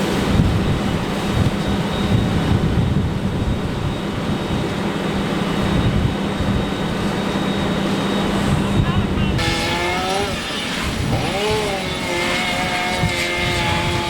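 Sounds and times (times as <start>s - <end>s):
constant noisy rush: 0.0s - 14.0s
held hum: 5.7s - 14.0s.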